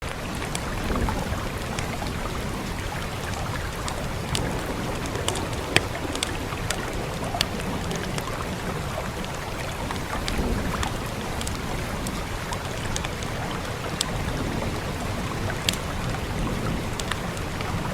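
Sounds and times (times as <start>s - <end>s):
rain hiss: 0.0s - 17.9s
fire crackling and popping: 0.1s - 17.9s.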